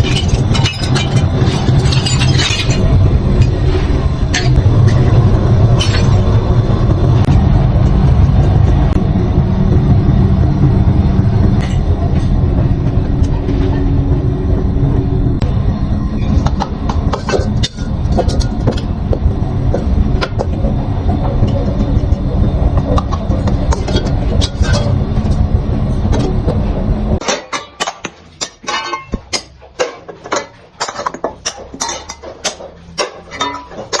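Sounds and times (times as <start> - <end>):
metal knocks and clatter: 0.0 - 6.4, 16.2 - 34.0
workshop machine rumble: 0.0 - 34.0.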